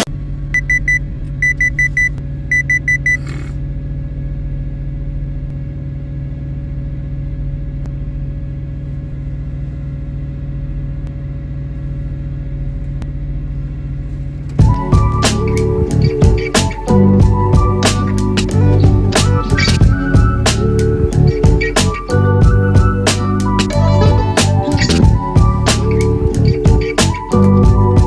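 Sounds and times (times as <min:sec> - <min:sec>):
diesel engine idling: 0:00.0 - 0:28.0
rapid high electronic beeps: 0:00.6 - 0:03.2.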